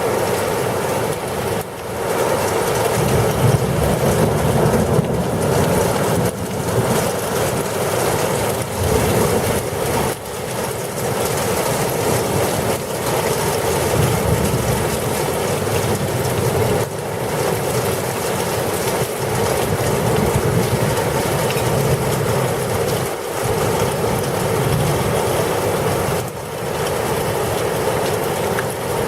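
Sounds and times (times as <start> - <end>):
heavy rain and wind rushing: 0.0 - 29.0
low thunder rumble: 3.0 - 7.6.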